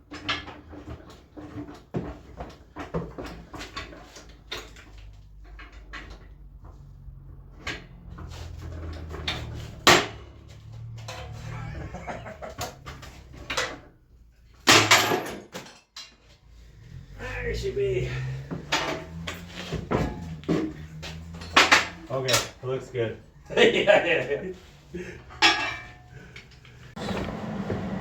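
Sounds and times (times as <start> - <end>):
steel parts knocking and clanking: 7.6 - 16.4, 18.3 - 24.0, 24.6 - 26.9.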